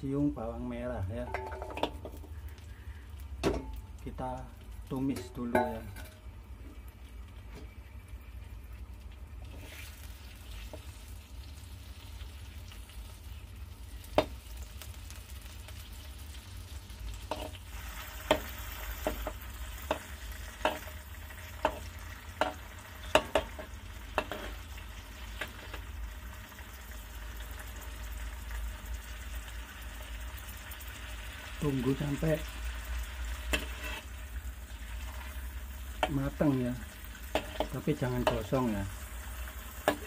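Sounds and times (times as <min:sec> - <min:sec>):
vegetables sizzling in oil: 0:00.4 - 0:40.0
spatula knocking against wok: 0:01.3 - 0:02.2, 0:18.2 - 0:20.9, 0:21.6 - 0:24.5, 0:37.3 - 0:38.5.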